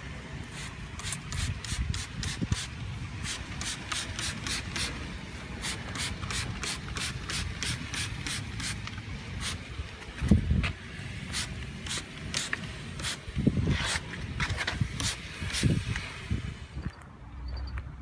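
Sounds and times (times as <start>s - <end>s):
trigger spray bottle squirting: 0.4s - 5.0s, 5.6s - 9.6s, 11.3s - 14.0s, 14.6s - 16.1s.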